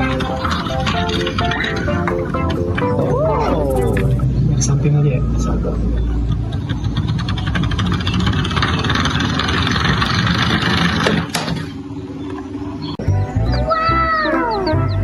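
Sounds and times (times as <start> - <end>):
motor with rapid pulsing rattle: 6.1 - 12.6.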